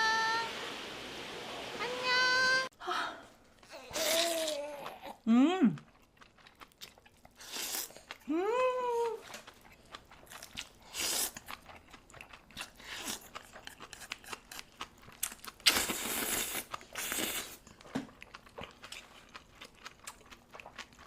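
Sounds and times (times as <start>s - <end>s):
person chewing and crunching: 3.6s - 8.3s, 9.0s - 21.0s.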